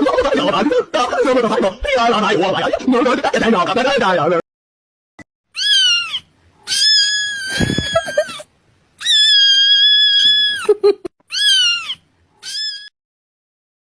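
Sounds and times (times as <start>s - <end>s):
cat meowing: 5.6s - 8.4s, 9.0s - 10.7s, 11.3s - 12.9s.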